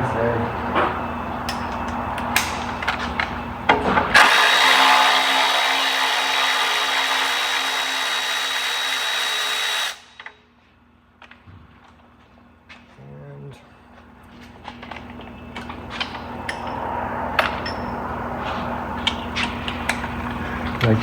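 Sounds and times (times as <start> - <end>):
cordless power tool whining: 4.1 - 10.3.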